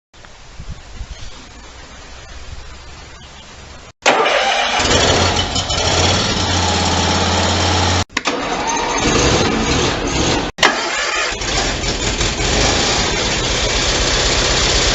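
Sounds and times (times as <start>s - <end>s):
small gas engine starting and running: 4.0s - 14.9s.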